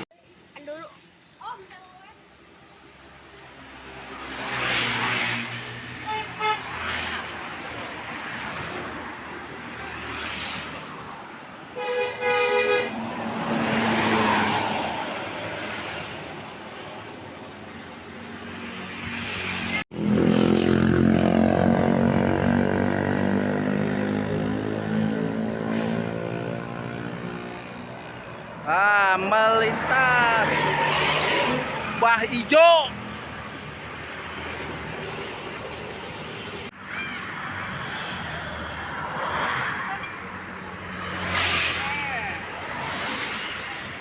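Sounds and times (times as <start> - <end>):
buses passing: 2.2 - 44.0
multi-tone bus horn: 6.0 - 6.9, 11.8 - 13.1.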